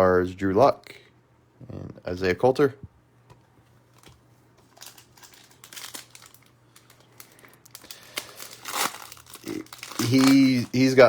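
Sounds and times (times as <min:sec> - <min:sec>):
foil wrapper crinkling and tearing: 0:03.9 - 0:11.0.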